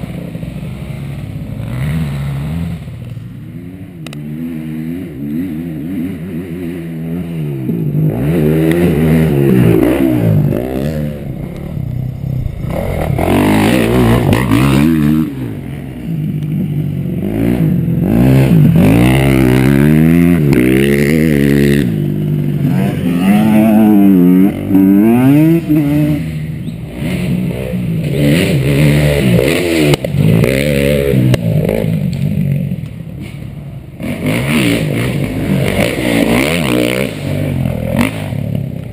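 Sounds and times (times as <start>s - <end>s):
motocross engine revving: 0.0s - 38.9s.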